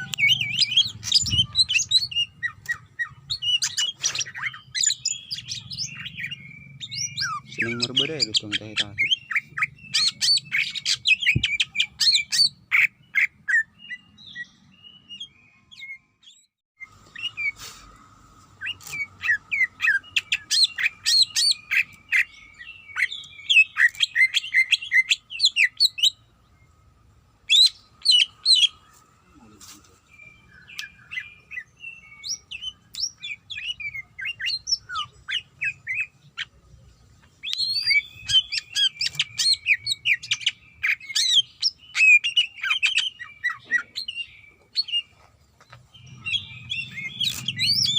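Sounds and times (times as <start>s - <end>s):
bird chirping and trilling: 0.0s - 17.8s, 18.6s - 47.9s.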